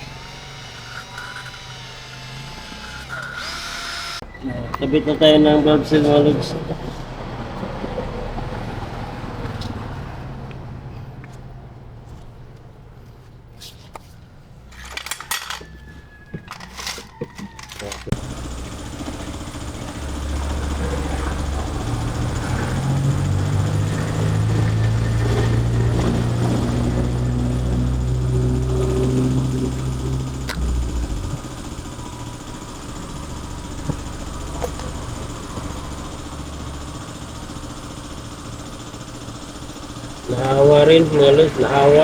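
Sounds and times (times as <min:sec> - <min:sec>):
vehicle engine running: 0:00.0 - 0:42.0
low hum: 0:17.6 - 0:38.8.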